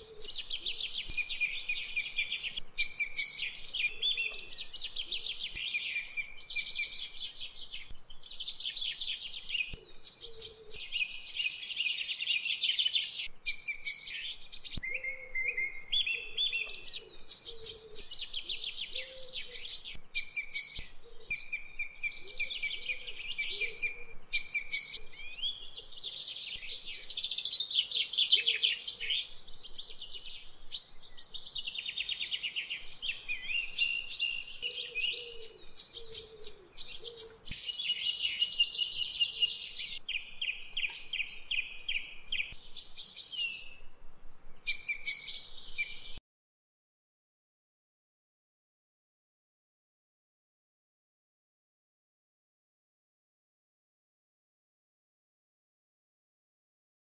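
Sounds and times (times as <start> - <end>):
songbirds chirping and singing: 0.0 - 43.9, 44.6 - 46.2.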